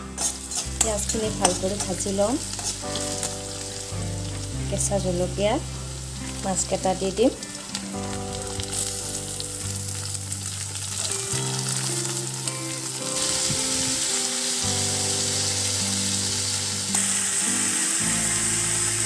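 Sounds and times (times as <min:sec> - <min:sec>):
metal spatula stirring: 0:00.0 - 0:04.5
prawns sizzling in hot oil: 0:00.0 - 0:19.0.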